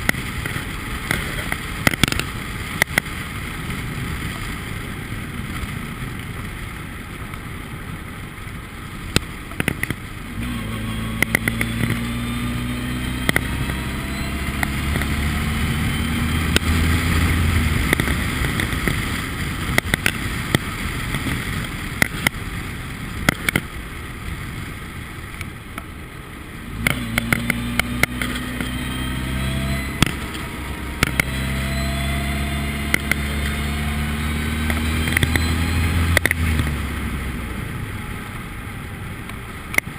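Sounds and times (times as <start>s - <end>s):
wind and road noise: 0.0s - 39.9s
race car engine running: 9.1s - 22.5s, 26.5s - 39.9s.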